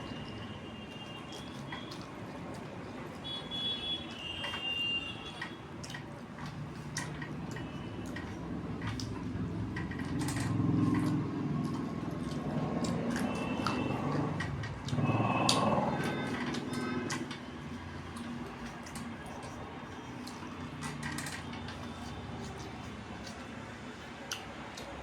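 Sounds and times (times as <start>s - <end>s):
person chewing with mouth clicks: 5.7s - 25.0s.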